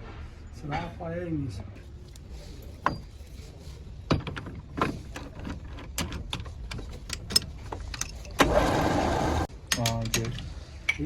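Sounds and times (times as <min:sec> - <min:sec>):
metal clinks and knocks: 0:02.8 - 0:03.4.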